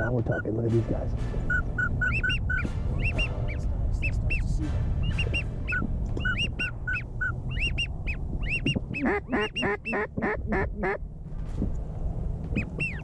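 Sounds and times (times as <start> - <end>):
goose-like calls: 0.0 - 0.6, 1.4 - 11.0, 12.5 - 13.0
steady low rumble: 0.0 - 13.0
loud quacks: 5.0 - 11.0.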